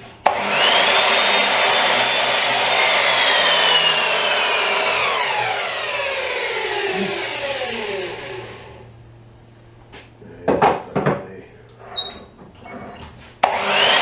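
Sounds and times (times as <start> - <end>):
circular saw cutting wood: 0.2 - 8.9, 13.4 - 14.0.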